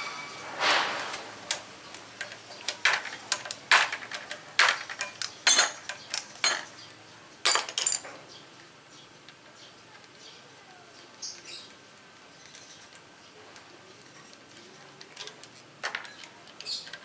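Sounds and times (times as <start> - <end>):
metal tools clinking: 2.2 - 6.8, 7.4 - 8.2.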